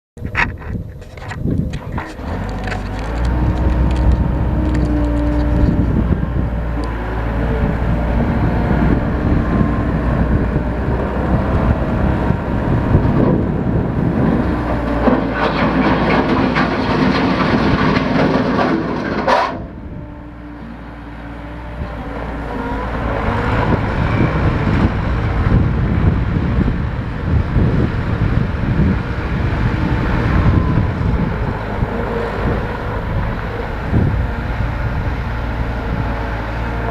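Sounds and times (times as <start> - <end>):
machine rattling and clanking: 0.2 - 5.8, 14.7 - 19.6
skid steer engine drone: 0.2 - 36.9.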